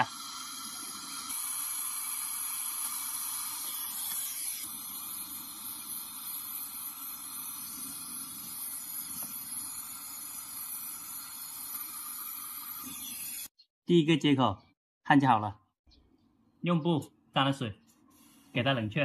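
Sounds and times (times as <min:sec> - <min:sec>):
torch flame hissing: 0:00.0 - 0:13.5.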